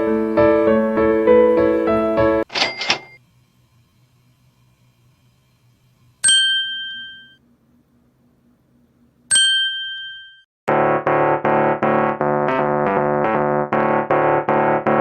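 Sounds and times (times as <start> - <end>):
bell-like dings: 2.5 - 3.2, 6.2 - 7.4, 9.3 - 10.5.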